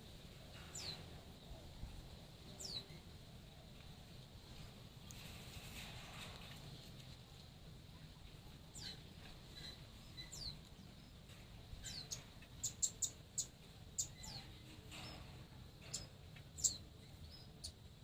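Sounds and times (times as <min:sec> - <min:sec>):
birds chirping: 0:08.0 - 0:18.0.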